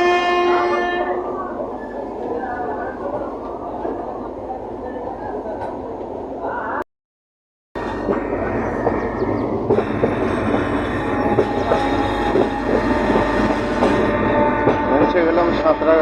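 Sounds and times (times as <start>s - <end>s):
train coach rumbling on rails: 7.8s - 16.0s.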